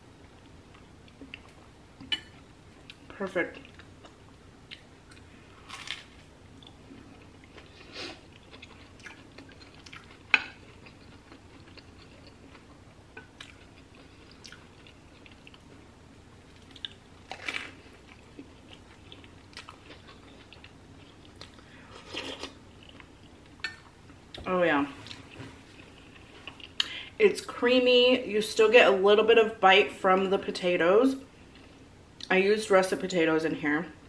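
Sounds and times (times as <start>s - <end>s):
chewing crunchy sandwich: 3.6s - 15.9s, 16.5s - 23.6s.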